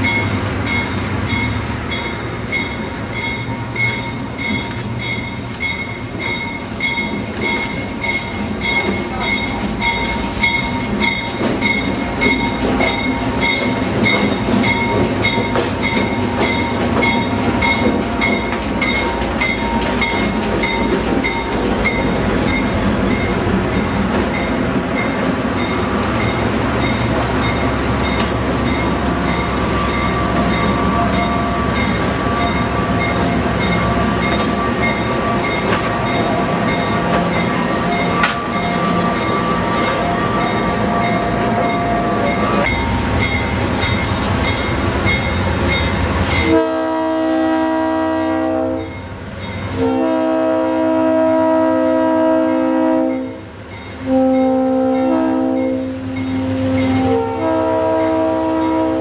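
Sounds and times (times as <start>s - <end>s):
train wheels clicking over rail joints: 0.0s - 46.5s
locomotive air horn: 46.4s - 48.9s, 49.7s - 53.4s, 54.0s - 59.0s.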